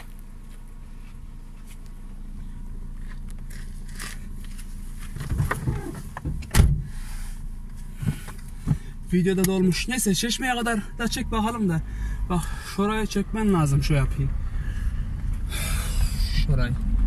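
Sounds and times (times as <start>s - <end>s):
car engine humming: 0.0s - 17.0s
sharp thump: 5.3s - 6.9s.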